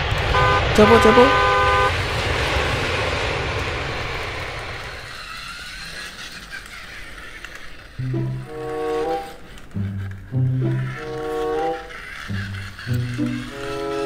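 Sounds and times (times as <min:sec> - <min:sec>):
vehicle noise: 0:00.0 - 0:14.0
held horn-like notes: 0:00.3 - 0:01.9, 0:08.0 - 0:14.0.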